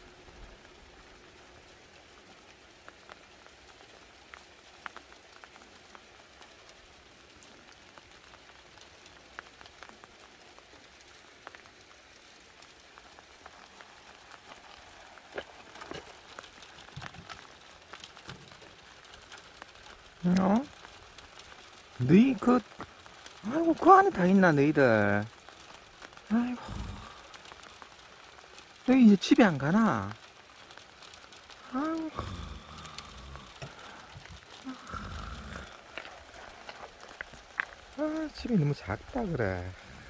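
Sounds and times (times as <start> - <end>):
steady rain falling: 0.0 - 40.0
water drips and sharp taps: 13.7 - 21.7.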